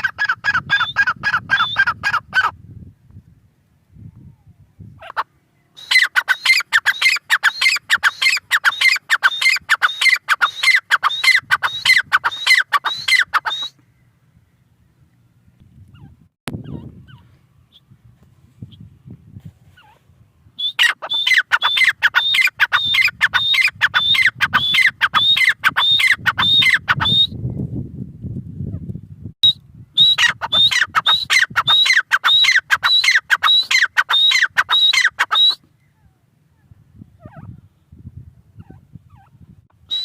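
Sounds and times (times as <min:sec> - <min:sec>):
bird calling rapid sharp notes: 0:00.0 - 0:02.5, 0:05.8 - 0:13.8, 0:20.6 - 0:27.3, 0:29.4 - 0:35.6.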